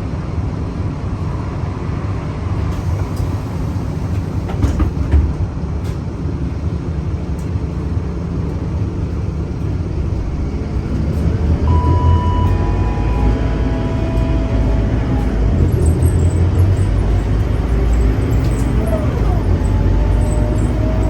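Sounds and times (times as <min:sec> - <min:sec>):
bus diesel engine rumbling: 0:00.0 - 0:21.0
faint whine: 0:11.6 - 0:17.7.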